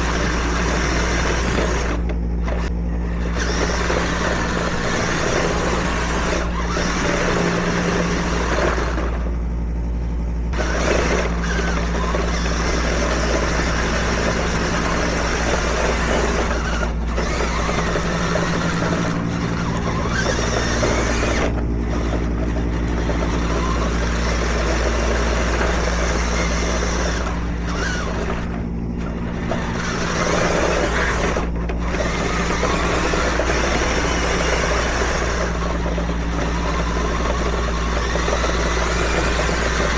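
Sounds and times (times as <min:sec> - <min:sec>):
toy vehicle motor hum: 0:00.0 - 0:09.3, 0:10.5 - 0:39.9
tracks clattering: 0:10.6 - 0:39.9.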